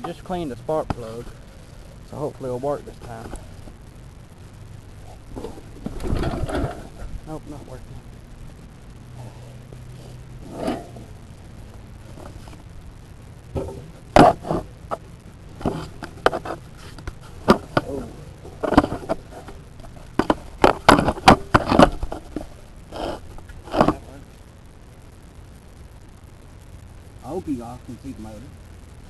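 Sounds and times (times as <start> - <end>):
sharp clanks and knocks: 13.6 - 15.0.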